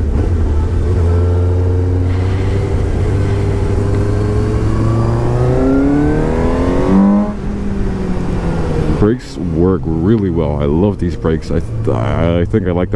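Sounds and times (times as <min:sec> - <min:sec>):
motorcycle engine accelerating: 0:00.0 - 0:12.8.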